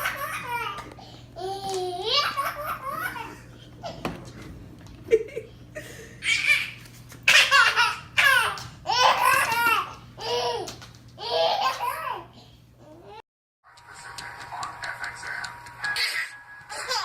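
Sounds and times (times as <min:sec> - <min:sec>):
baby laughing: 0:00.0 - 0:04.0, 0:06.2 - 0:12.2, 0:15.9 - 0:17.0.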